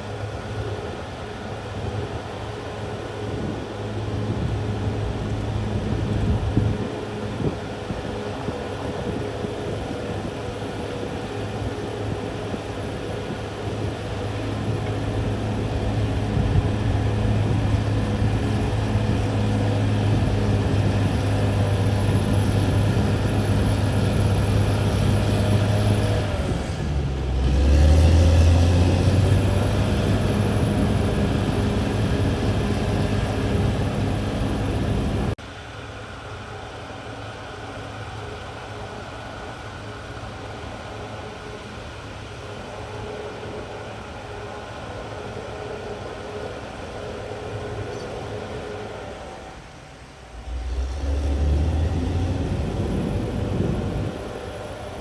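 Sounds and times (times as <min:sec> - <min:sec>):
bulldozer diesel engine running: 0:00.0 - 0:35.4, 0:50.3 - 0:55.0.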